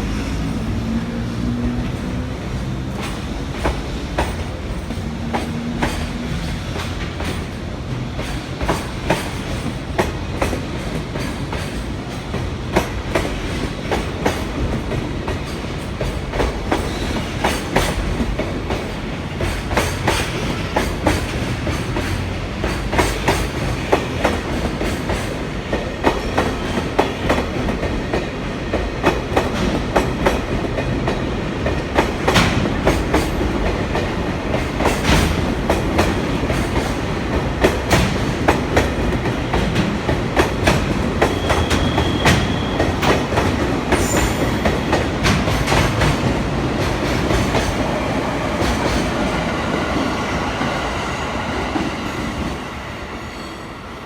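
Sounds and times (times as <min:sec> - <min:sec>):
freight train rolling past: 0:00.0 - 0:54.0
high squeal: 0:41.3 - 0:43.2.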